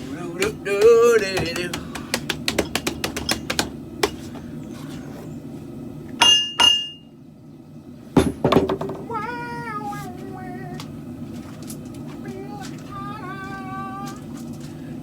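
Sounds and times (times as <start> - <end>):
hammer on metal: 0.4 - 4.2, 6.2 - 7.0.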